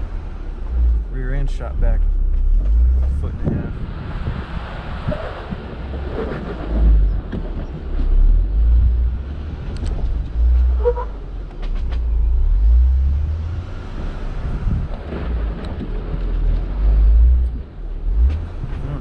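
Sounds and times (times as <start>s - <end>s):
car engine rumbling: 0.0s - 19.0s.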